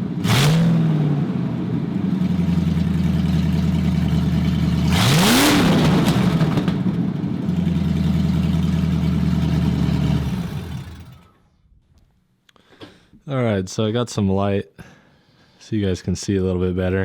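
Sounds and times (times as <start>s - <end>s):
engine revving: 0.0s - 11.4s
loud lumpy engine idling: 1.9s - 11.5s.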